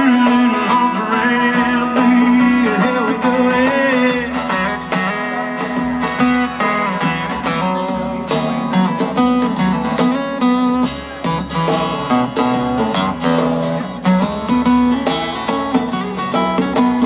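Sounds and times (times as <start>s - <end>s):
guitars strummed and picked: 0.0s - 17.0s.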